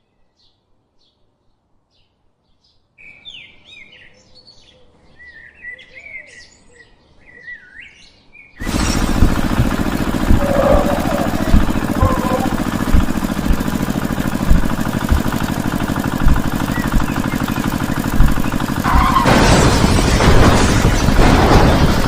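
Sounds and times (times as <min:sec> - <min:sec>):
knocking: 0:08.6 - 0:22.0
small motor running: 0:08.6 - 0:22.0.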